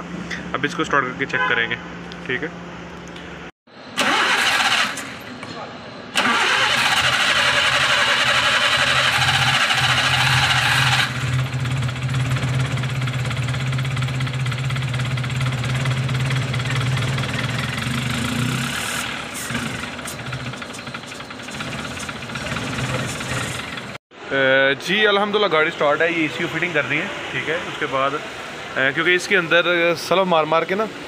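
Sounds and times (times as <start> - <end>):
car engine starting and idling: 3.9 - 5.3, 6.2 - 24.0.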